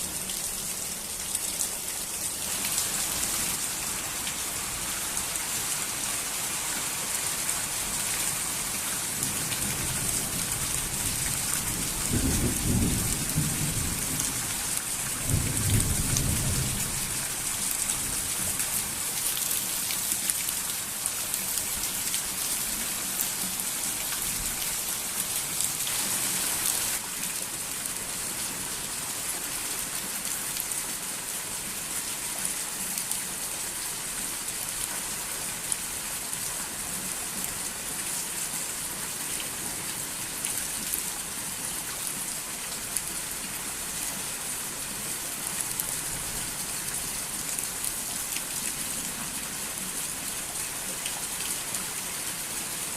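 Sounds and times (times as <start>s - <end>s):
steady rain falling: 0.0s - 52.9s
low rolls of thunder: 11.7s - 14.4s.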